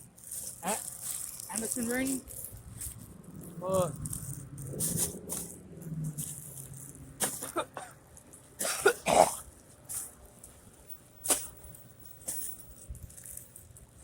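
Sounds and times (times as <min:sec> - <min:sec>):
man coughing: 0:07.4 - 0:08.0, 0:08.6 - 0:09.4.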